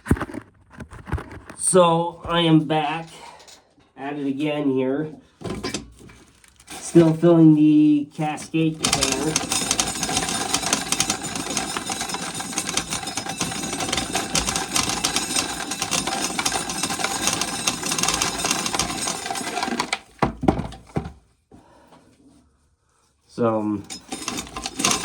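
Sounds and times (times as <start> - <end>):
corn kernels rattling into plastic: 6.1 - 7.2, 8.2 - 21.0, 23.8 - 25.0.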